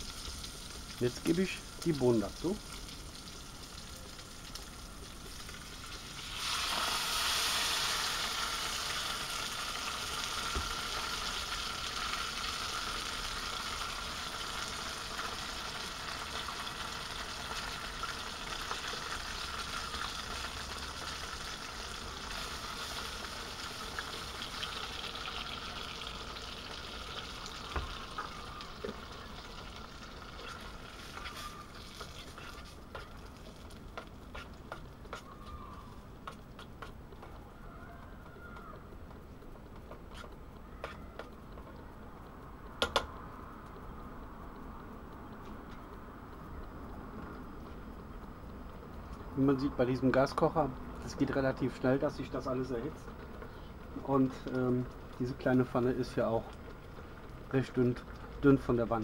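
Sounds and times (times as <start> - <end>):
sausage sizzling in a pan: 0.0 - 37.1.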